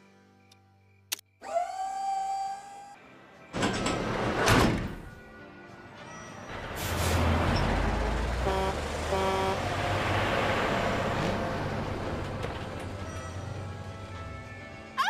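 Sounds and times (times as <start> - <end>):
passing traffic: 5.8 - 15.0
short horn toots: 8.4 - 9.6.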